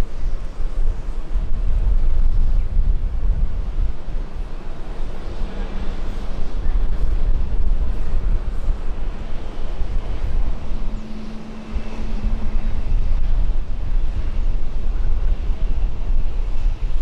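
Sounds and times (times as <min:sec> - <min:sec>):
wind buffeting microphone: 0:00.0 - 0:17.0
jet engine roar: 0:04.2 - 0:15.8.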